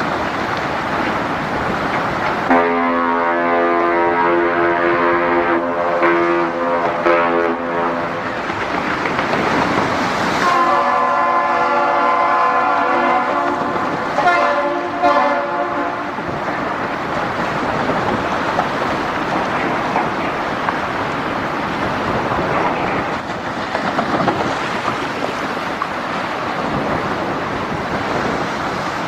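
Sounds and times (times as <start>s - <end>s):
steady rushing noise: 0.0s - 29.0s
loud horn: 2.5s - 8.3s, 10.4s - 16.2s.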